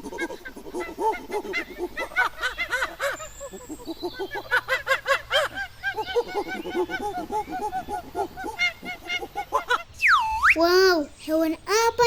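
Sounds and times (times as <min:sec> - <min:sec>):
monkey chattering: 0:09.9 - 0:12.0.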